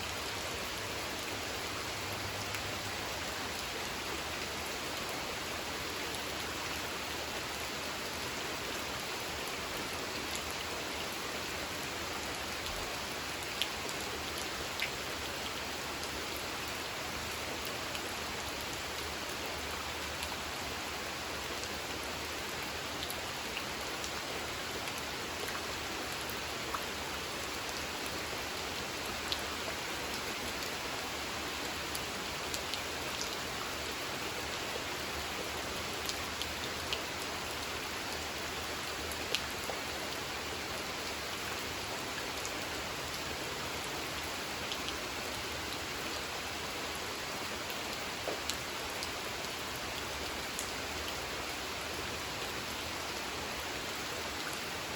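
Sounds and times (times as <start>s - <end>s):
rain pattering on pond water: 0.0s - 54.9s.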